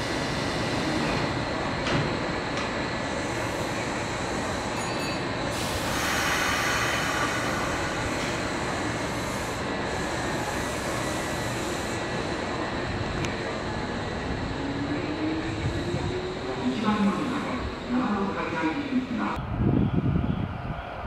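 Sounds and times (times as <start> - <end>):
train hiss: 0.0 - 1.3, 3.0 - 13.9
train rumble and rail noise: 0.0 - 21.0.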